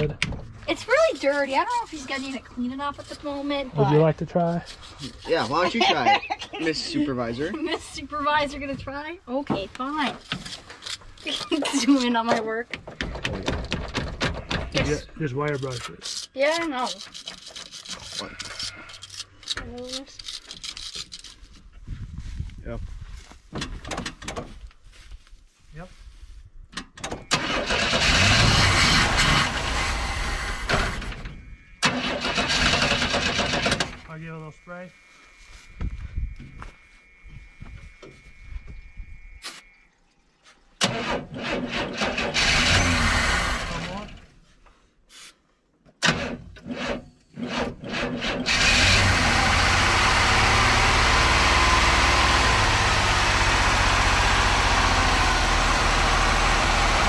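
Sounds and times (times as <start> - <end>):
engine starter cranking: 27.0 - 34.0, 40.8 - 44.2, 46.0 - 57.0.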